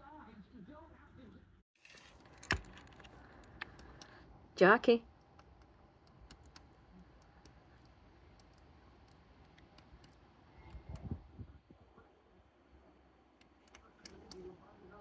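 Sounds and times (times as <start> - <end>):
faint clicks: 5.2 - 11.1.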